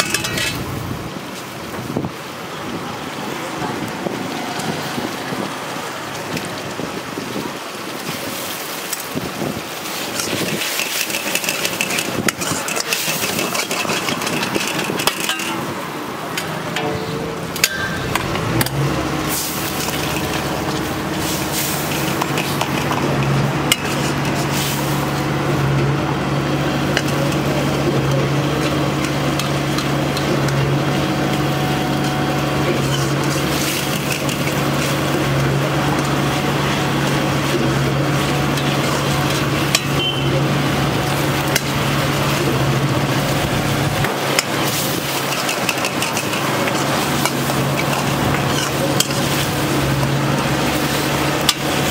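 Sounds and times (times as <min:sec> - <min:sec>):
metal ladle scraping a wok: 0:00.0 - 0:00.8, 0:09.9 - 0:15.8, 0:16.4 - 0:25.2, 0:41.1 - 0:51.9
ladle clinking on pan: 0:10.8 - 0:15.7.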